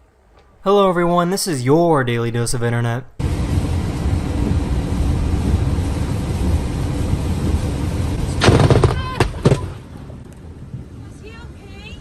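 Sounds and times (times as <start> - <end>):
lightning strike crack: 3.2 - 11.0
road and engine rumble: 3.2 - 12.0.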